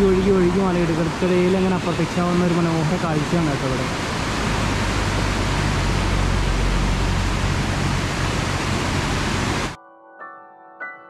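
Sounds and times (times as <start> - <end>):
river water rushing: 0.0 - 9.8.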